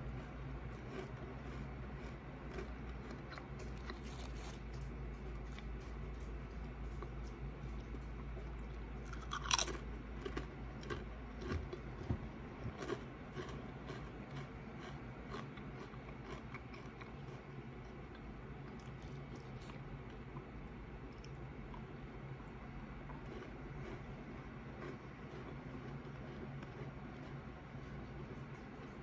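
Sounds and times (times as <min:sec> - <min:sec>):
crackling chewing: 0:00.0 - 0:22.0, 0:23.0 - 0:29.0
tortilla chip crunching: 0:00.7 - 0:07.4, 0:09.0 - 0:11.8.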